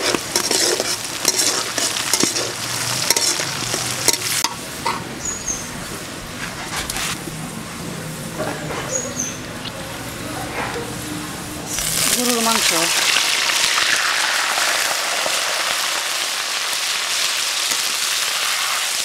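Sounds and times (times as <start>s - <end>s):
metal spatula scraping pan: 0.0s - 5.0s
onion sizzling in hot oil: 0.0s - 5.6s, 11.7s - 19.0s.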